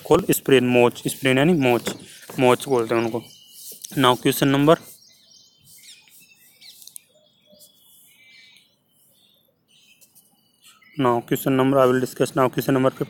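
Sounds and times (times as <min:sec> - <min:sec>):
faint small bird chirps: 0:02.9 - 0:11.2.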